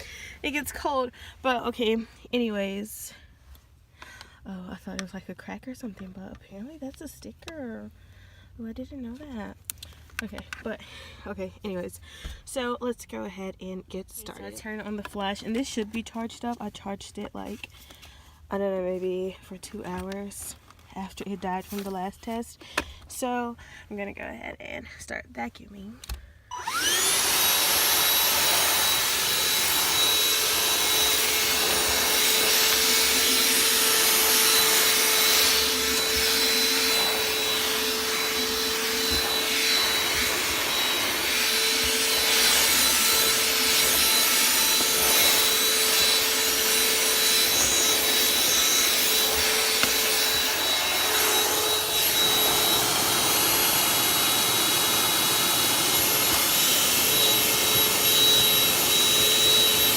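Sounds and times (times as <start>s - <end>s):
handheld vacuum whining: 26.0s - 59.9s
nozzle scraping car interior: 27.9s - 59.1s.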